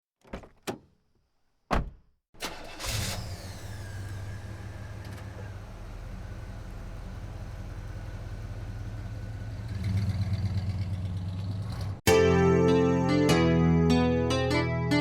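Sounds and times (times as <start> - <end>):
car engine cranking and idling: 2.4 - 12.0.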